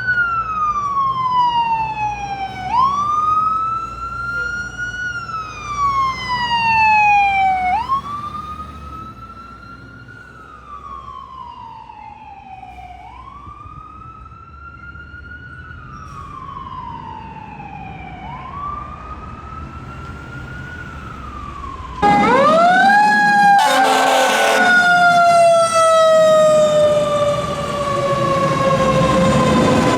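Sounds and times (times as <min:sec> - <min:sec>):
fire engine siren wailing: 0:00.0 - 0:29.9
loud siren close by: 0:00.0 - 0:29.9
horn blast: 0:22.0 - 0:25.2.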